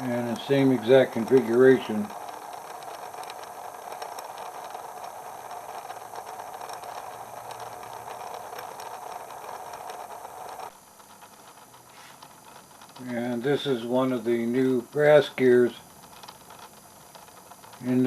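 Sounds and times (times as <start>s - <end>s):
gear whir and rattle: 0.0s - 18.0s.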